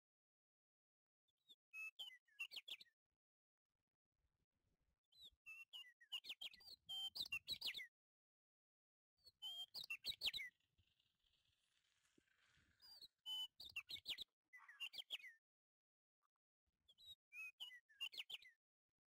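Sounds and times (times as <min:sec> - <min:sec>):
small bird chirping: 0:05.1 - 0:07.9, 0:09.2 - 0:15.4, 0:16.9 - 0:18.6.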